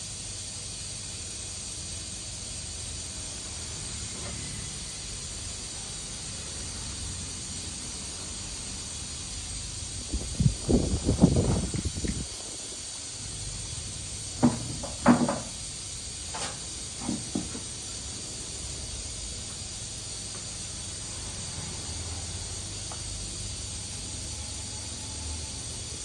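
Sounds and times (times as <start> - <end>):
steady hiss: 0.0 - 26.0
short knocks and clunks: 14.4 - 15.5.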